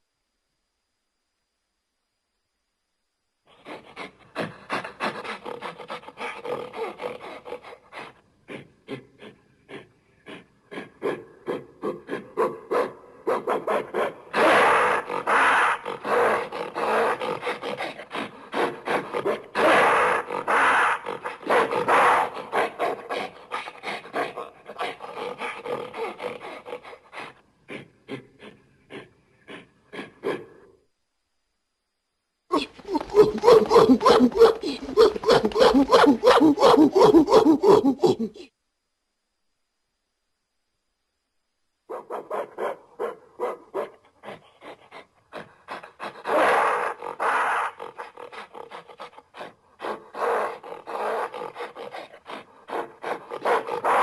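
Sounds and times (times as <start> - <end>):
gorilla grunting: 3.6 - 12.5, 13.8 - 30.6, 32.5 - 38.5, 44.2 - 54.0
gorilla drawn-out calls: 14.3 - 24.5, 32.5 - 38.5.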